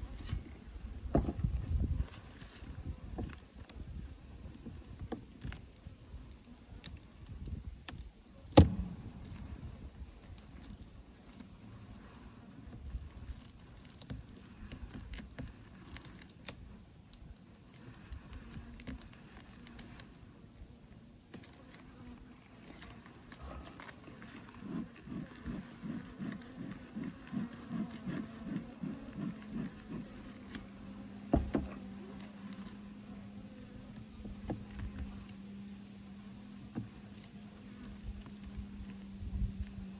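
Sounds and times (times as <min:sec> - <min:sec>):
hive frames clicking and scraping: 0:00.0 - 0:39.9
honeybees humming: 0:08.3 - 0:39.9.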